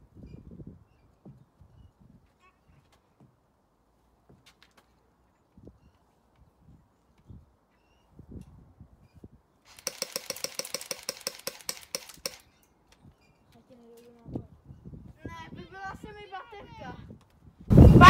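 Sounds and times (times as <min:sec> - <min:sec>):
airsoft rifle full-auto burst: 0:09.7 - 0:12.4.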